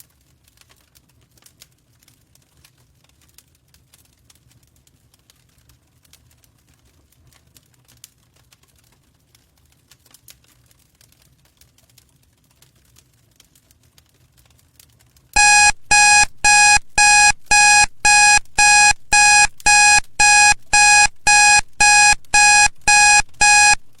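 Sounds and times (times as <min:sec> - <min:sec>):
timer alarm beeping: 0:15.4 - 0:24.0.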